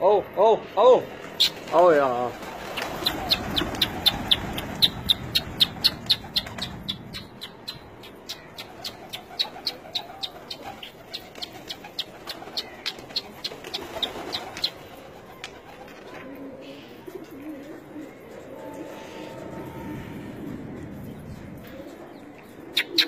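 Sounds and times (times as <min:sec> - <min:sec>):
pigeons cooing faintly: 0:00.6 - 0:23.0
bird chirping rapidly: 0:02.6 - 0:14.8.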